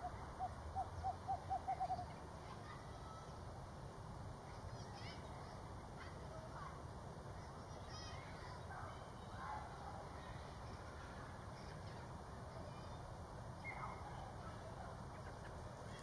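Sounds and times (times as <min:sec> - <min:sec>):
distant birds calling: 0:00.0 - 0:02.3.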